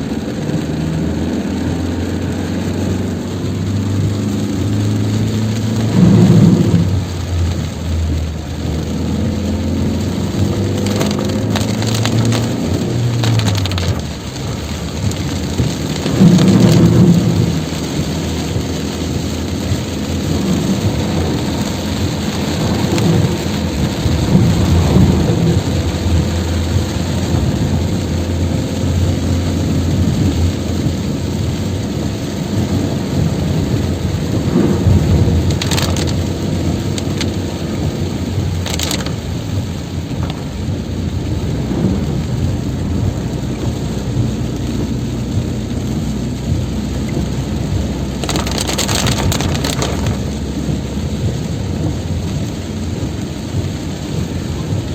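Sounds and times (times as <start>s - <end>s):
heavy rain pouring: 0.0s - 54.9s.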